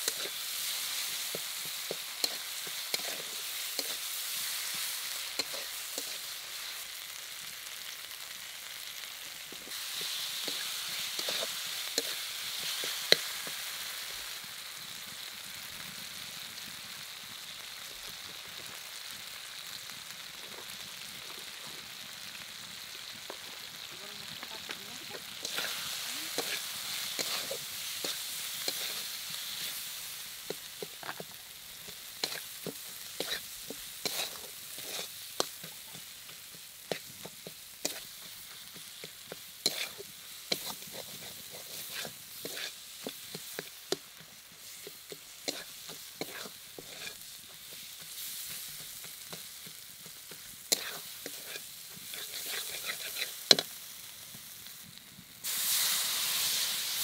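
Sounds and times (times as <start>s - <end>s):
metal spatula scraping wok: 0.0s - 6.8s, 9.7s - 14.1s, 24.6s - 53.8s
masala sizzling in oil: 0.0s - 57.0s.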